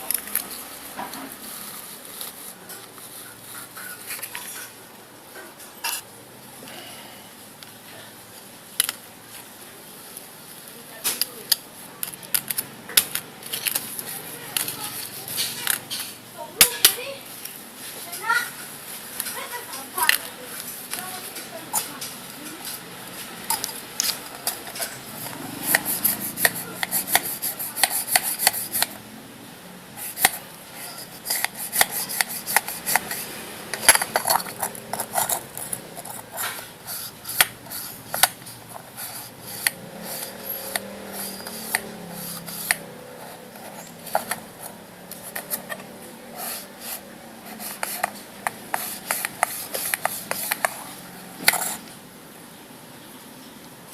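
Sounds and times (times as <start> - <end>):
small hard parts clicking: 11.0 - 16.2, 19.1 - 29.0, 30.0 - 51.9.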